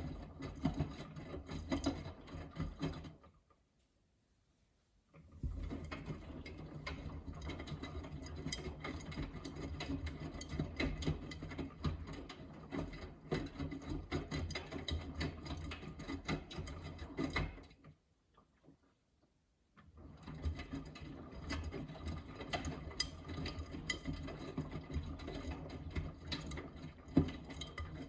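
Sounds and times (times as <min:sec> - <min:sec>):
washing machine motor hum: 0:05.3 - 0:13.9.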